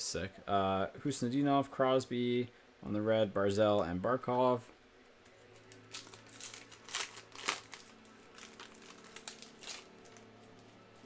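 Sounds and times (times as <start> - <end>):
foil wrapper crinkling: 5.4 - 11.0.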